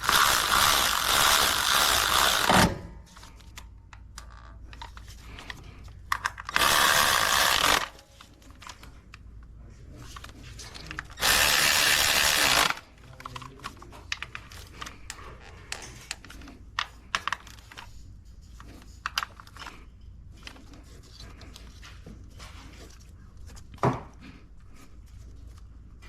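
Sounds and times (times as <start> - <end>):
power tool running: 0.0 - 2.7, 6.5 - 8.0, 11.2 - 12.8.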